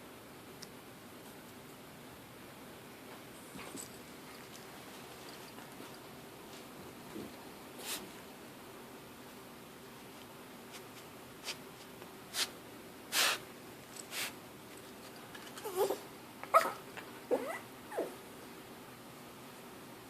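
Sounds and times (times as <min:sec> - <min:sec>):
dog whining: 0:15.6 - 0:18.2.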